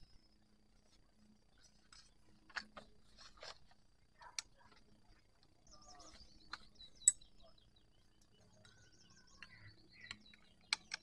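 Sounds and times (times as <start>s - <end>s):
small birds trilling: 4.2s - 11.0s
sharp clicks: 9.4s - 11.0s.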